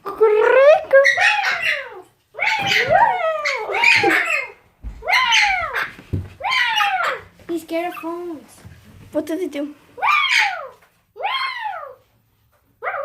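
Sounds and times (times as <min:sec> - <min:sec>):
parrot calling harshly: 0:00.9 - 0:07.3, 0:10.0 - 0:12.0.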